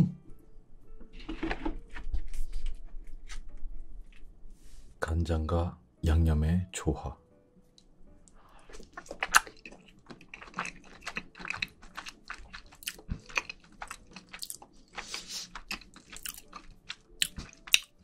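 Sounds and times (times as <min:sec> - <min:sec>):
chewing with mouth clicks: 0:08.5 - 0:18.0.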